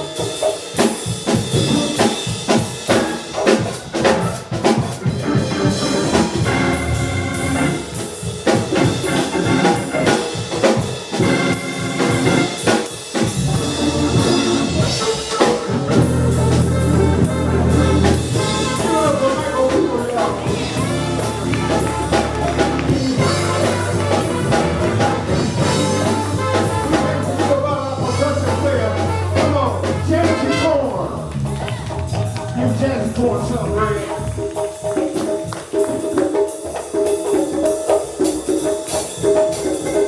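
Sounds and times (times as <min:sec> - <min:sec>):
jazz band playing: 0:00.0 - 0:40.0
low bass notes: 0:04.9 - 0:10.2, 0:11.2 - 0:34.6.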